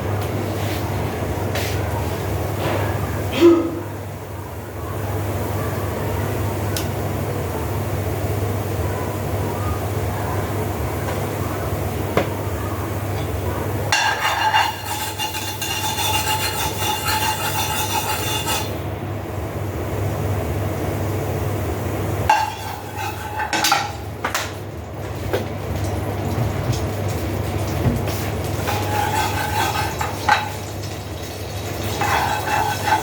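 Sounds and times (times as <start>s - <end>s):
metal cookware scraping and clinking: 13.9s - 18.8s, 22.3s - 24.5s, 28.5s - 33.0s.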